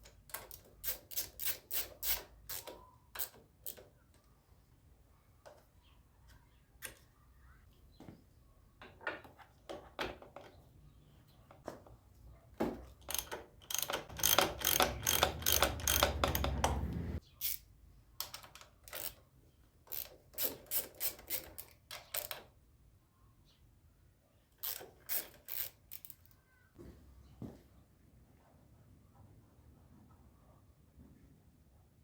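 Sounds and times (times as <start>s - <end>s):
ratchet wrench clicking: 0.3s - 3.8s, 13.1s - 17.6s, 18.2s - 19.2s, 19.9s - 22.4s, 24.6s - 26.2s.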